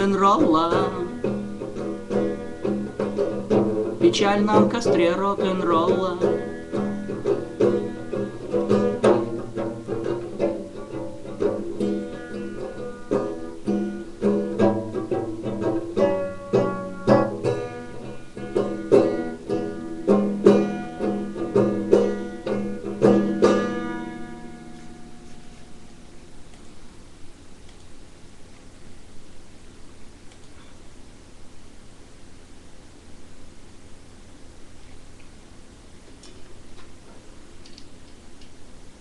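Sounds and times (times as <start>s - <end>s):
plucked string instrument: 0.0s - 26.5s.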